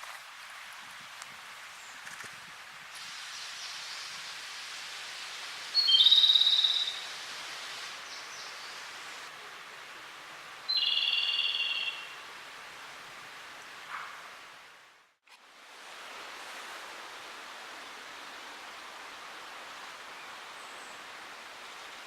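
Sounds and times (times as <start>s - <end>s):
steady background hiss: 0.0s - 22.0s
bird singing with rattling trill: 10.7s - 12.0s.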